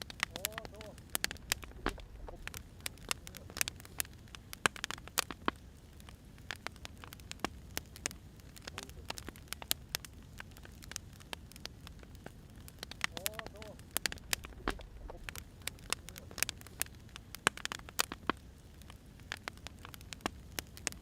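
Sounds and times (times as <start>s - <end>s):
firewood crackling: 0.0s - 21.0s.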